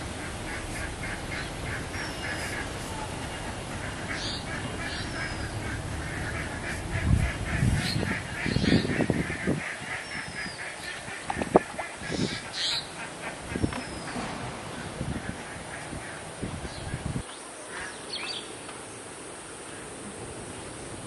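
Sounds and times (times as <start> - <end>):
repeated bird call: 0.0 - 15.0.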